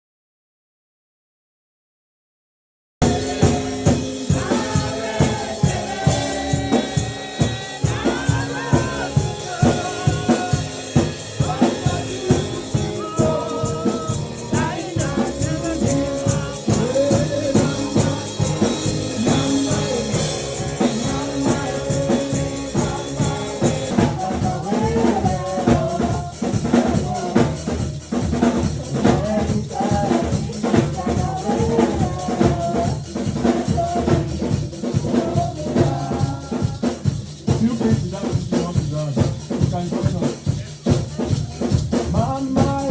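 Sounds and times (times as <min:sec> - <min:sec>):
person singing: 0:03.0 - 0:27.8, 0:28.9 - 0:37.1, 0:40.5 - 0:42.9
drum beat: 0:03.0 - 0:42.9
rattling percussion: 0:03.0 - 0:42.9.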